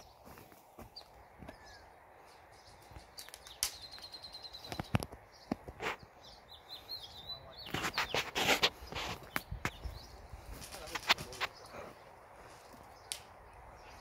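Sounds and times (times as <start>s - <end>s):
small bird singing: 0.0s - 14.0s
sharp clicks and crunches: 10.6s - 11.6s.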